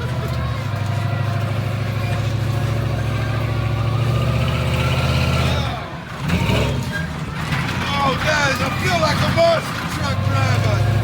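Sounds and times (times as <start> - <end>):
truck engine running hard: 0.0 - 11.0.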